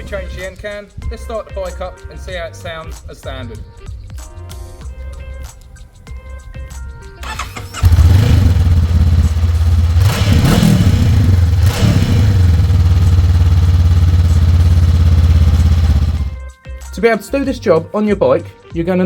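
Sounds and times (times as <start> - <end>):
motorcycle engine starting and idling: 7.2 - 16.4.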